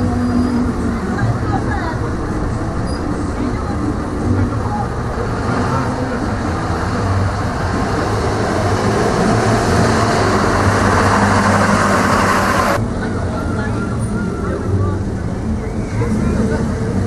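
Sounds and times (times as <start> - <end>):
vehicle engine running: 0.0 - 12.8
rush of noise: 2.0 - 13.2.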